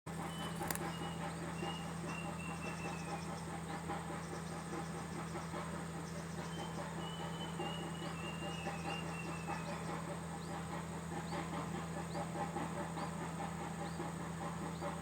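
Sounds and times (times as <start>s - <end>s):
small birds peeping: 0.1s - 15.0s
steady low hum: 0.1s - 15.0s
click: 0.6s - 0.9s.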